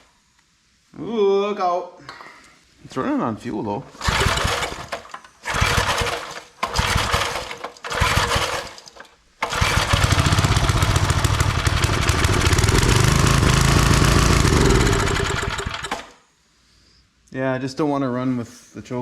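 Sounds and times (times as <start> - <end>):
small engine firing and running: 4.0 - 16.2.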